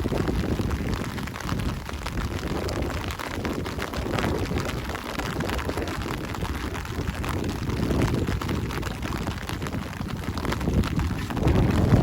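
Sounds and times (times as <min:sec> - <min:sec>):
raindrops pattering close by: 0:00.0 - 0:12.0
steady rain falling: 0:00.0 - 0:12.0
low rumble: 0:07.0 - 0:12.0.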